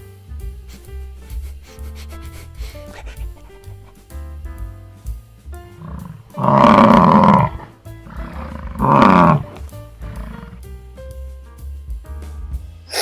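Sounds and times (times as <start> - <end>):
background music: 0.0 - 13.0
loud animal calls: 2.2 - 4.0, 5.7 - 10.6.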